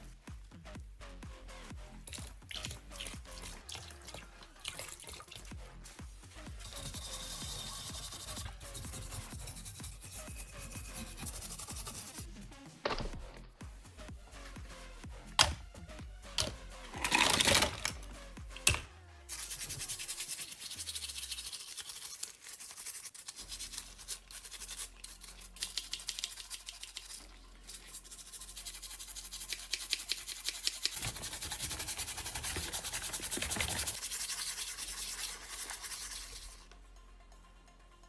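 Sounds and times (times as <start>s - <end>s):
fast rubbing strokes: 6.4s - 12.3s, 19.3s - 36.7s.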